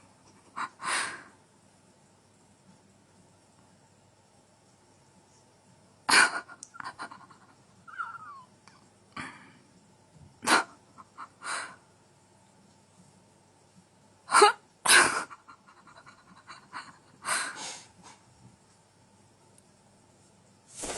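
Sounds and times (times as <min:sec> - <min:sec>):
animal hissing: 0:17.5 - 0:18.2.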